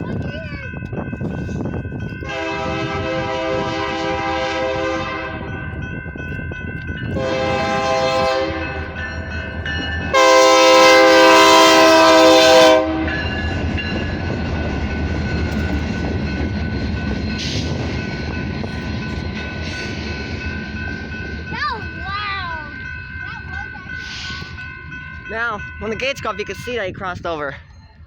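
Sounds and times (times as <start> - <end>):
train horn blasts: 2.2 - 5.5, 7.1 - 9.0, 10.1 - 13.2
train wheels clacking on rails: 5.4 - 26.8.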